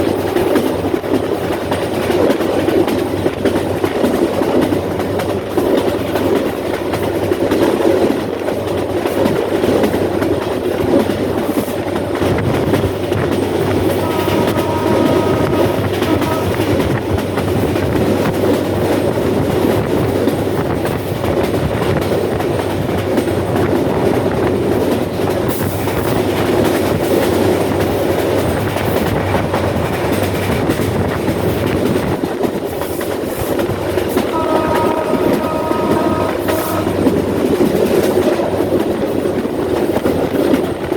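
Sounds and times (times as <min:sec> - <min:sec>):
train wheels clacking on rails: 0:00.0 - 0:40.9
train horn: 0:13.8 - 0:17.1, 0:34.2 - 0:37.6.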